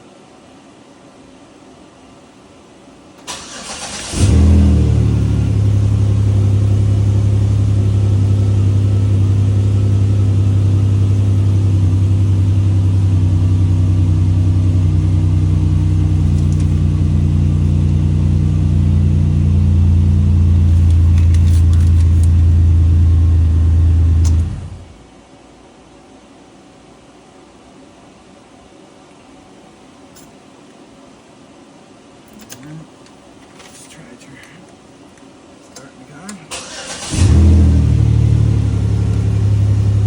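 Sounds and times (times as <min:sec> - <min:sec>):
car engine idling: 0:03.3 - 0:25.0, 0:36.6 - 0:40.0.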